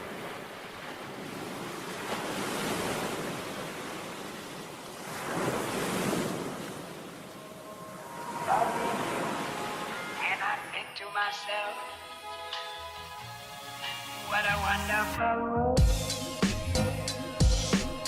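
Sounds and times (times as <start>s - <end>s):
rushing surf noise: 0.0s - 10.9s.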